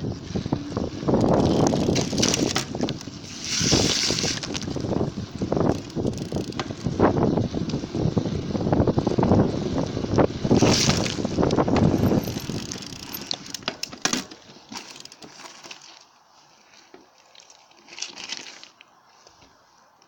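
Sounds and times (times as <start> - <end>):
wind buffeting microphone: 0.0 - 13.7
bicycle tyre rumble: 0.0 - 20.0.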